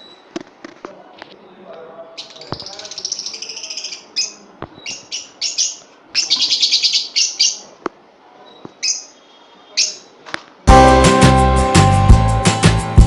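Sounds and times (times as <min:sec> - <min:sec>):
small birds chirping and trilling: 0:01.3 - 0:10.3.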